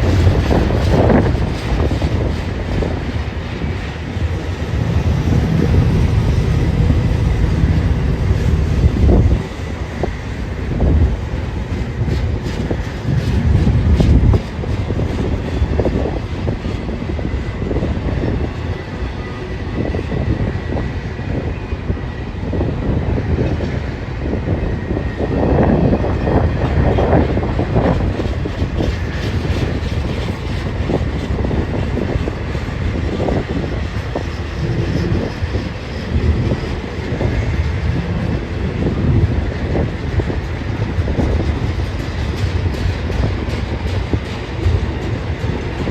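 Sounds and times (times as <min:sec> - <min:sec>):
freight train rumbling past: 0:00.0 - 0:45.9
wheels clicking over rail joints: 0:39.6 - 0:45.9.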